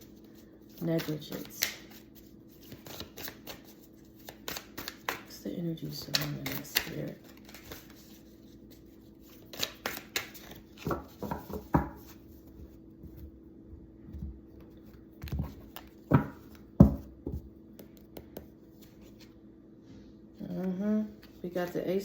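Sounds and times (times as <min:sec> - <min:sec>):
faint steady hum: 0:00.0 - 0:22.0
cards slapping and tapping: 0:00.8 - 0:05.4, 0:06.0 - 0:08.2, 0:09.3 - 0:12.2, 0:15.2 - 0:19.3.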